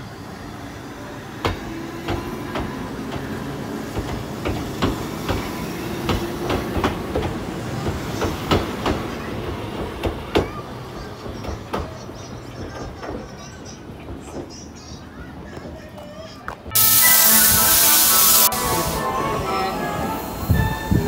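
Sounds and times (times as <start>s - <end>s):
low train rumble: 0.0s - 21.0s
train wheels clicking over rail joints: 1.4s - 16.0s.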